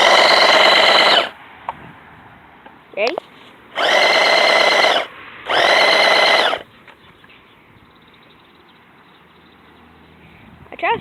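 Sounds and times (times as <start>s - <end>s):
toy car electric motor whining: 0.0s - 1.3s, 3.8s - 6.6s.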